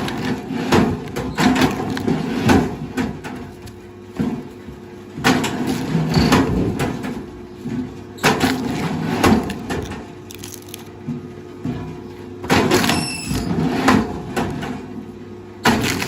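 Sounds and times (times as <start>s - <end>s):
wood cracking and crunching: 8.2s - 11.0s, 15.7s - 16.0s.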